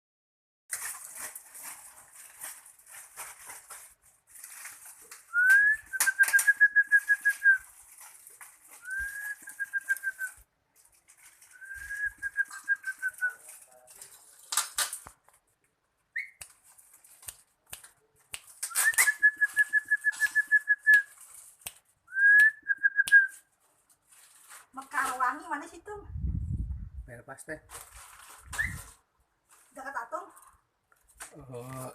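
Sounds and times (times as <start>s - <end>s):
rustling and wing flutters: 27.7s - 29.8s.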